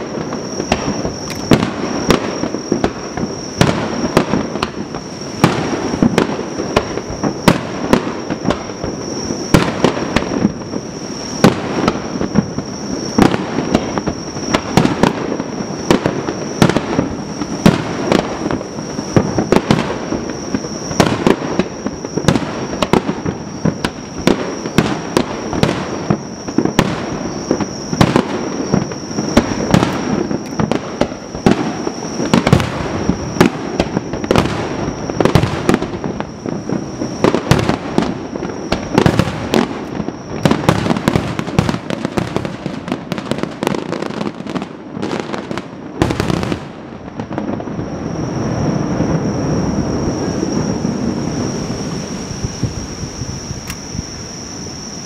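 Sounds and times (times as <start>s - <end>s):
firework shells bursting: 0.0s - 43.8s.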